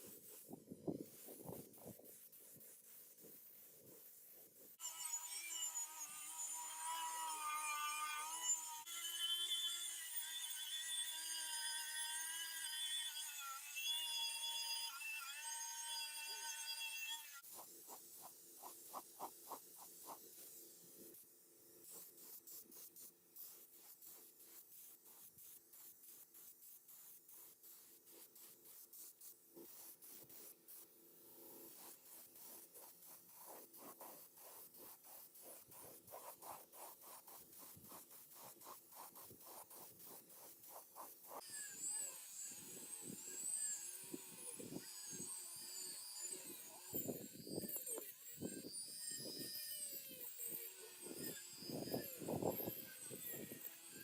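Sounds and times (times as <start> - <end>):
hand rubbing strokes: 0.0 - 4.8, 17.4 - 21.2, 21.8 - 41.4.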